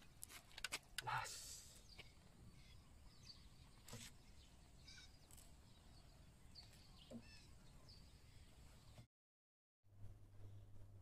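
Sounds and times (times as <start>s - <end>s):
bird chirps: 1.7s - 9.0s.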